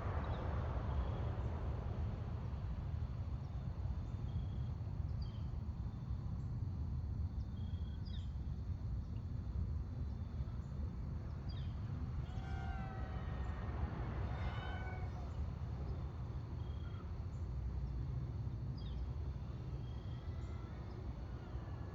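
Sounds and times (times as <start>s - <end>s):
low rumble of wind: 0.0s - 21.9s
wavering animal call: 12.2s - 15.6s.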